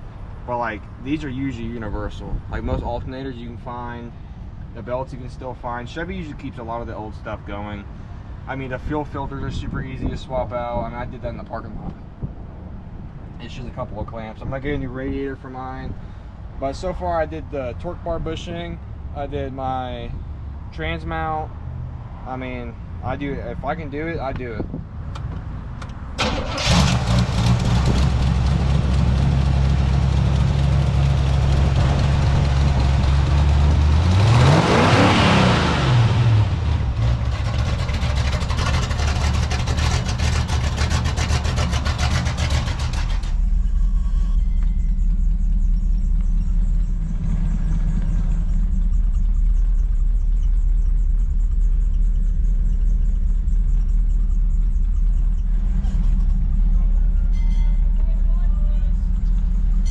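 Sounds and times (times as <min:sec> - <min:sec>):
car engine cranking and starting: 0:25.8 - 0:59.9
car engine revving: 0:26.2 - 0:57.3
dull low rumble: 0:26.7 - 0:34.9, 0:35.8 - 0:59.9.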